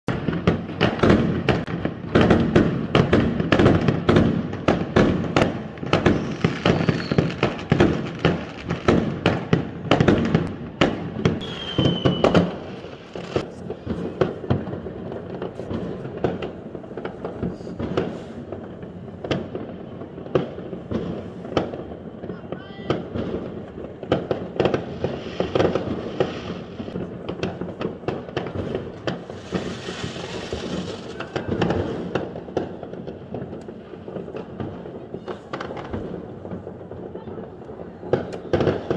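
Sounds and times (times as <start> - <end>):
fireworks bangs and crackles: 0.1 - 38.9
firework whistle: 6.0 - 7.6, 11.4 - 13.4, 29.2 - 32.0.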